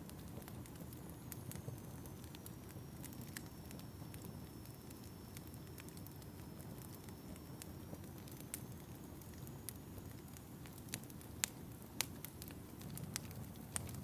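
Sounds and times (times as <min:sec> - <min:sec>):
fire low rumble: 0:00.0 - 0:14.0
fire sharp pops: 0:10.3 - 0:14.0.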